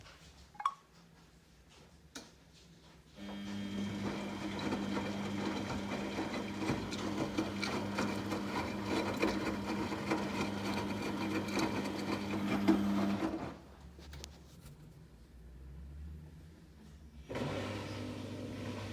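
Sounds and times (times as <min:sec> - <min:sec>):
washing machine spinning with rattling: 0:03.2 - 0:13.6.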